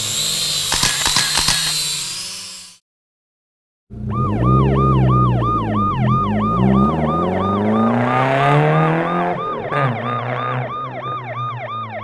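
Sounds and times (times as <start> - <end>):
police siren yelping: 4.0 - 12.0.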